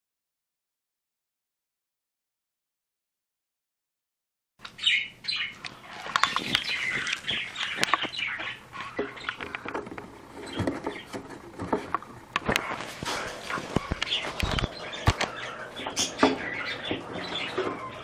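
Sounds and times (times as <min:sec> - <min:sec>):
bird chirping: 0:04.6 - 0:18.0
sharp clicks and scratching taps: 0:05.6 - 0:15.4.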